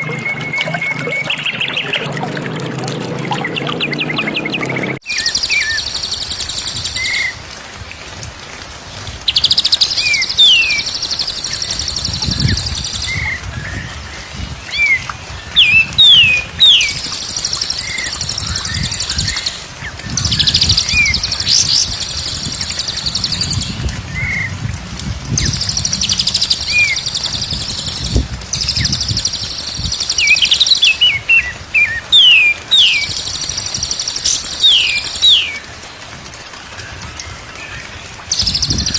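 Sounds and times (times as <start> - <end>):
bird whistling: 0.0 - 2.0, 15.6 - 17.0, 30.1 - 33.1, 34.0 - 35.6
high bird trill: 25.4 - 35.6.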